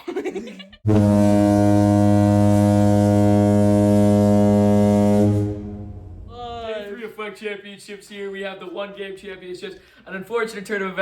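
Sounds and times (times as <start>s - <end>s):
low horn-like tone: 0.9s - 6.6s.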